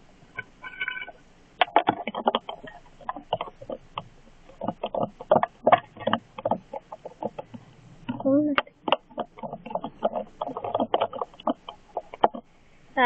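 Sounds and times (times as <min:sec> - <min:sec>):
slime squelching: 0:00.6 - 0:13.0.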